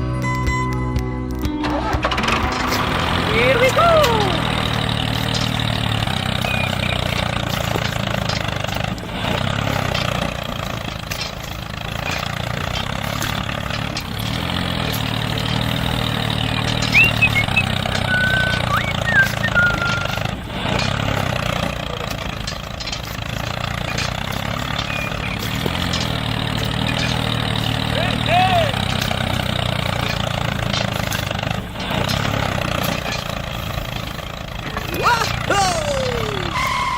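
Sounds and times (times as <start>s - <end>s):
small engine idling: 1.6s - 36.9s.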